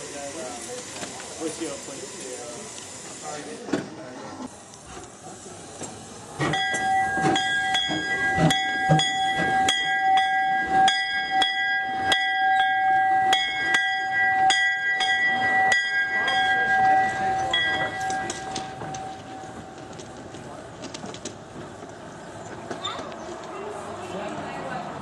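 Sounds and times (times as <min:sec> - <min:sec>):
railway bell ringing: 0:06.4 - 0:20.0.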